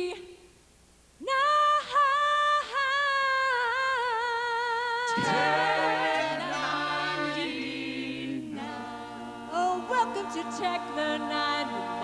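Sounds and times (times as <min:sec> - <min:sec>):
lower voices singing a chord: 0:05.1 - 0:12.0.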